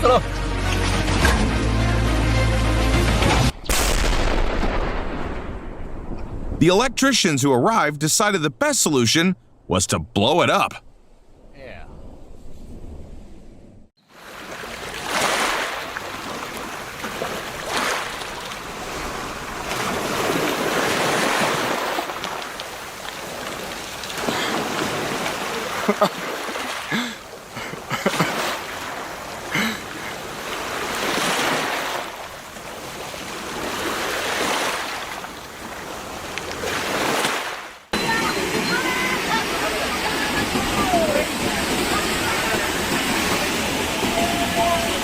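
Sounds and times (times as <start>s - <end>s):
rushing water surging: 14.0s - 45.0s.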